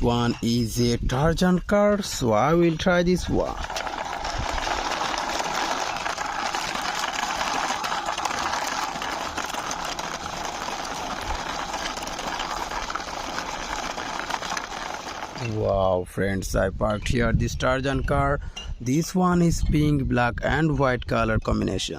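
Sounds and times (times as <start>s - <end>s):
toy car wheels whirring: 3.2s - 15.6s.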